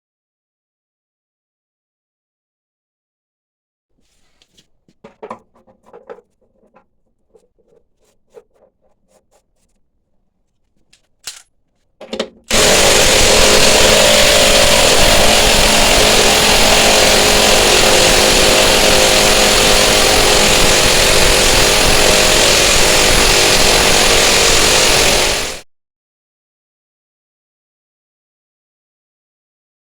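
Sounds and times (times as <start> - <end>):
faint clicks and knocks: 4.4 - 12.5
power tool running: 12.5 - 25.6.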